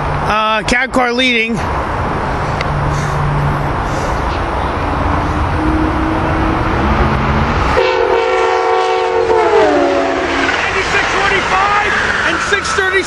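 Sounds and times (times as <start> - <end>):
train passing at speed: 1.6 - 13.0
train horn chord: 5.5 - 10.6.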